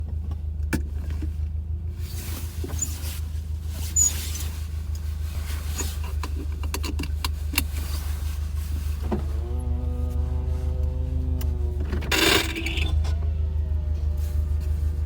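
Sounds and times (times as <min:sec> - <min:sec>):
car engine rumble: 0:00.0 - 0:15.0
intermittent grinding clicks: 0:10.8 - 0:13.3.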